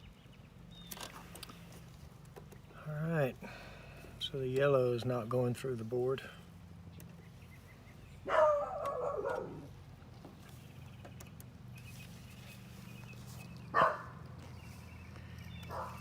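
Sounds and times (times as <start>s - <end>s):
steady low hum: 0.0s - 16.0s
dog barking: 8.3s - 9.7s, 13.8s - 14.2s, 15.7s - 16.0s.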